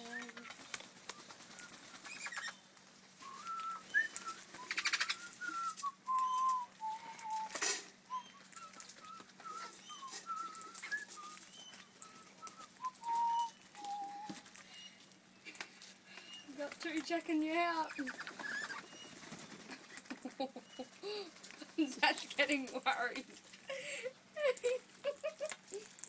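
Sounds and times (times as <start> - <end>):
wing flaps rattle: 0.0 - 2.6, 16.6 - 20.3
parrots piping whistles: 1.2 - 2.6, 3.2 - 15.1, 18.0 - 19.2.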